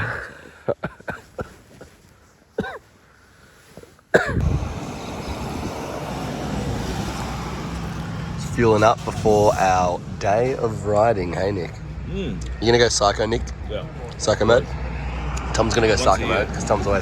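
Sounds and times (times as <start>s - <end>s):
engine and traffic rumble: 3.9s - 17.0s.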